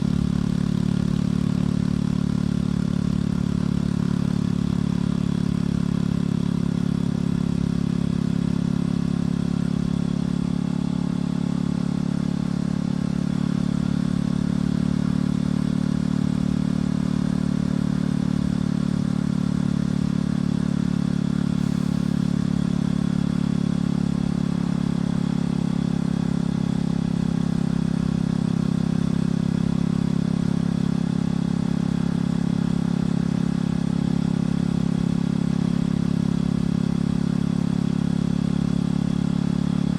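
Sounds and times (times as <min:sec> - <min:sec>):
motorcycle engine cruising: 0:00.0 - 0:11.0, 0:21.2 - 0:30.2.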